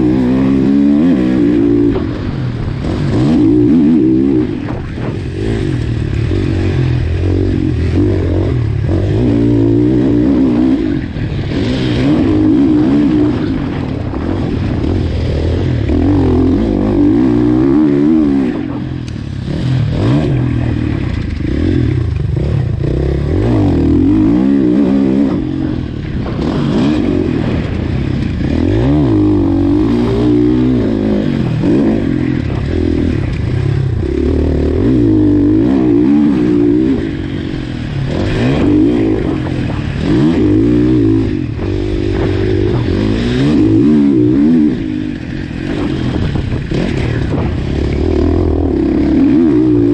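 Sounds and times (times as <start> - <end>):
motocross bike engine revving: 0.0 - 49.9.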